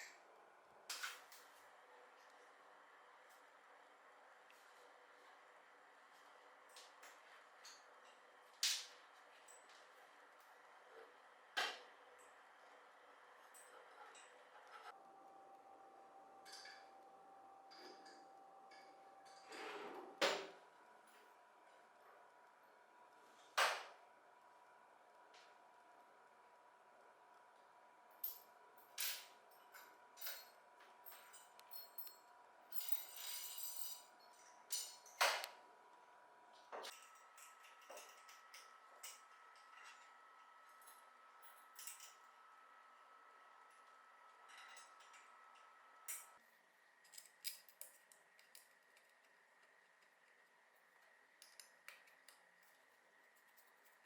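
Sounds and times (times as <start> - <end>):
metal parts clinking and knocking: 47.0 - 49.3
light clicks and snips of hand work: 47.0 - 54.0.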